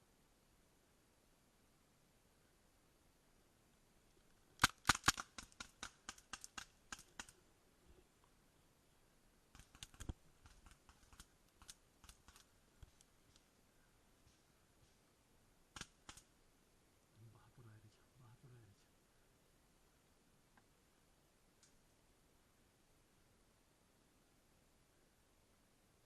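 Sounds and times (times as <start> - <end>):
paintball markers firing: 4.6 - 7.3.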